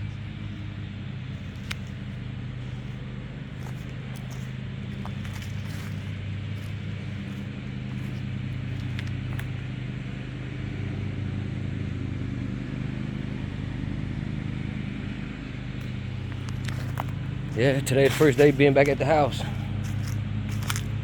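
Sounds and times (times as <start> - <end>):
engine running steadily: 0.0 - 21.0.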